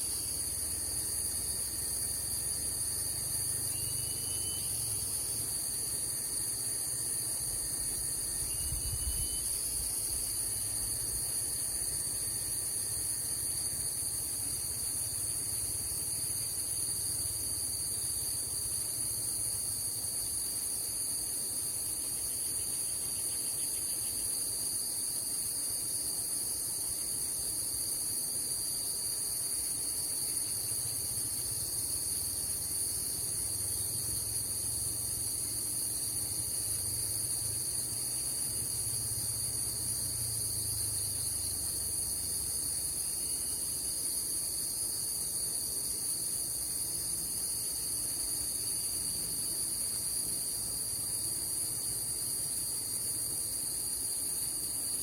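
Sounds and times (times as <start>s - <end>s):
insect chorus drone: 0.0s - 55.0s.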